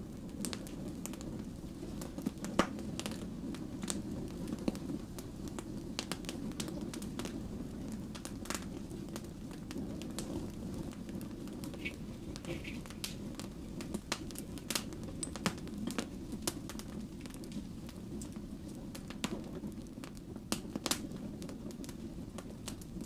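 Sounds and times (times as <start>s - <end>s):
low rumble of flames: 0.0s - 23.0s
wood fire crackling: 0.0s - 23.0s.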